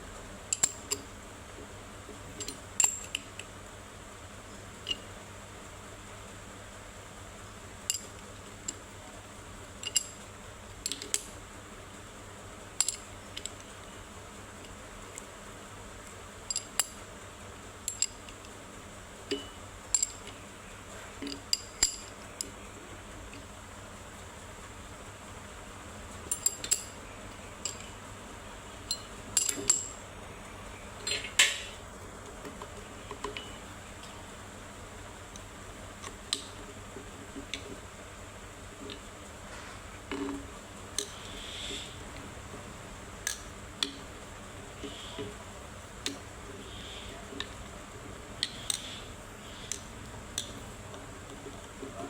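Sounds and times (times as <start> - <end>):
metallic knocking of engine parts: 28.9 - 30.0, 31.0 - 31.8.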